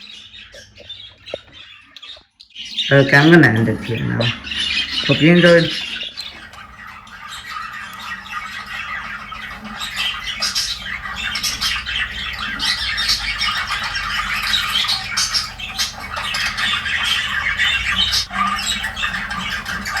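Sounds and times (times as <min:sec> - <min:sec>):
budgerigars chirping and squawking: 0:00.0 - 0:20.0.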